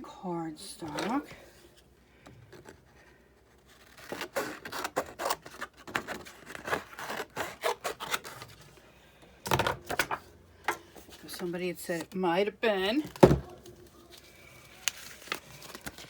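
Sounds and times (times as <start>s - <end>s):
cardstock scraping and rustling: 0.8s - 8.8s.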